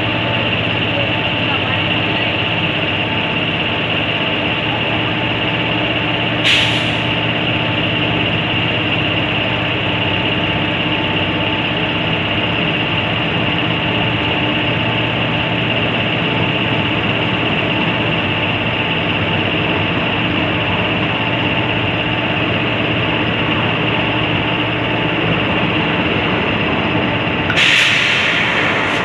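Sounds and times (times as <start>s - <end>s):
train coaches rolling past: 0.0s - 29.0s
sharp burst of hiss: 27.5s - 29.0s.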